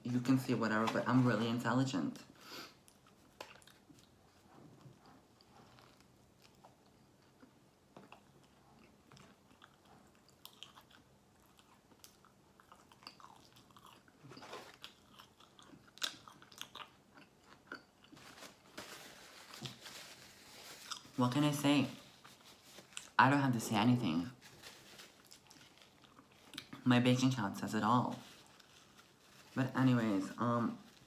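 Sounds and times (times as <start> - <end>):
faint chewing: 2.7 - 18.6, 19.5 - 21.2, 24.4 - 26.9.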